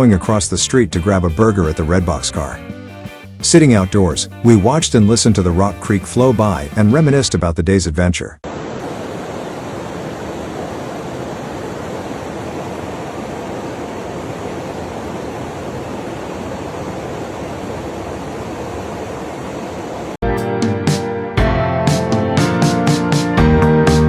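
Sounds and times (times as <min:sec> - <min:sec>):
creek water rushing: 0:08.4 - 0:20.2.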